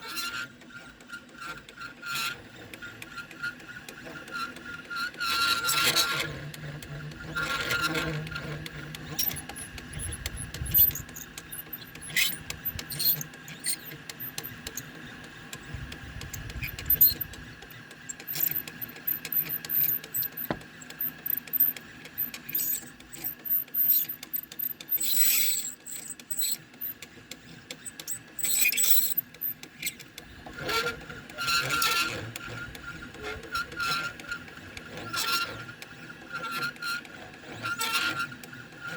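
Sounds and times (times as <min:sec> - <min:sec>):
stepper motors whining: 0:07.2 - 0:27.0, 0:27.8 - 0:29.5
machine clicks: 0:08.9 - 0:27.1.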